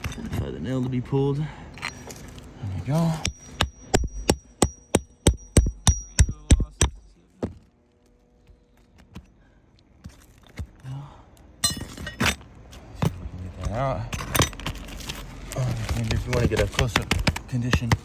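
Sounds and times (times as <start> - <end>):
hammer blows on metal: 3.2 - 7.2.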